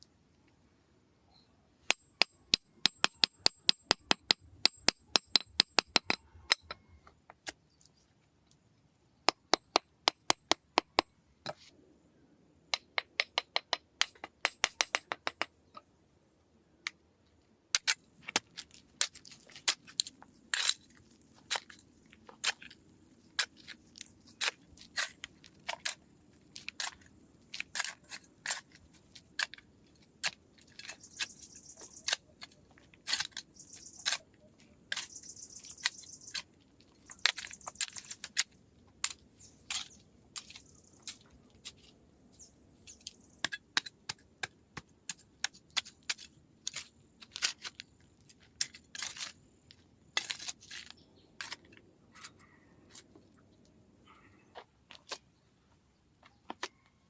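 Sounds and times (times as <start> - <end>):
sharp knocks and clicks: 1.9 - 6.9, 12.8 - 15.8.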